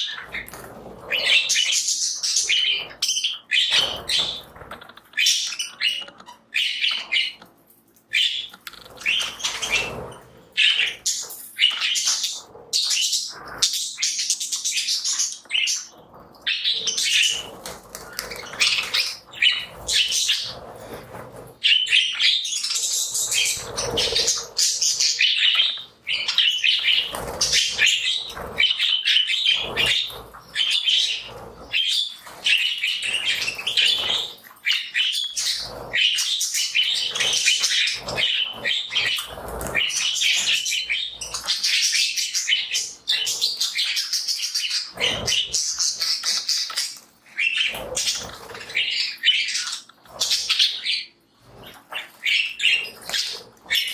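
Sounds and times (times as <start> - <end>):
budgies chattering and chirping: 0.0 - 53.9
wing flapping and rustling: 8.7 - 13.7, 15.9 - 21.8, 22.9 - 25.3, 26.0 - 34.8, 35.4 - 42.0.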